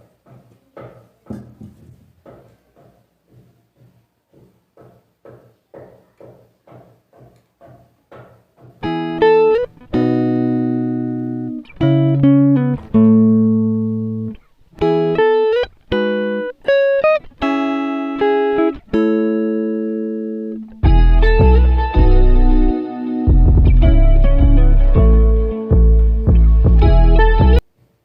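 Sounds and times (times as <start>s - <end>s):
plucked guitar music: 8.8s - 27.7s.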